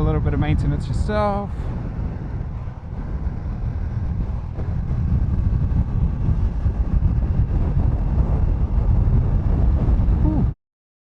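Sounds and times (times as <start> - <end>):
motorcycle engine rumble: 0.0 - 10.6
road noise: 0.0 - 10.6
wind buffeting microphone: 0.0 - 10.6.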